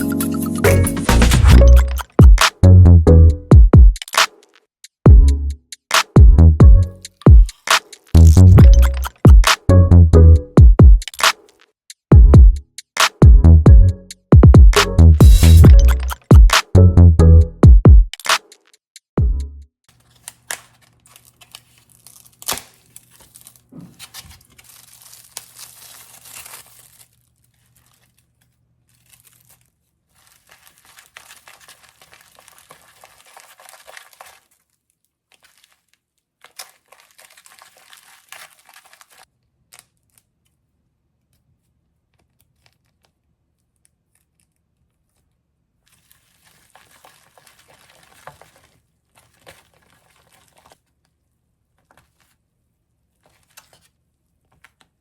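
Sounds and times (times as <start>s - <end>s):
sharp click: 4.0s - 4.6s, 5.9s - 6.2s, 7.1s - 8.2s, 11.0s - 11.7s, 18.1s - 18.8s
crinkling and rustling: 7.0s - 9.4s, 11.0s - 11.8s, 19.9s - 55.0s.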